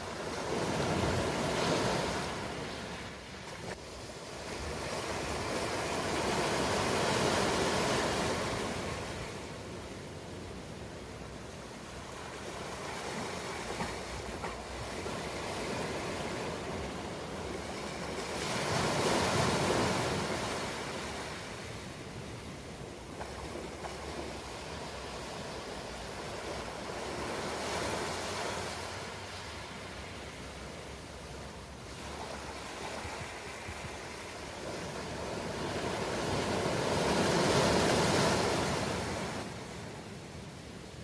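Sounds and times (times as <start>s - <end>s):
ocean waves breaking on shore: 0.0s - 41.0s.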